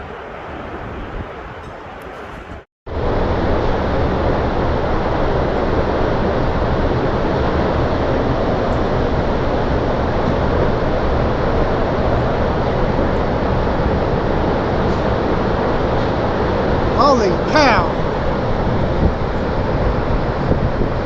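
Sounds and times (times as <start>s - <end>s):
storm wind roaring: 0.0s - 21.0s
wind pounding microphone: 17.9s - 21.0s.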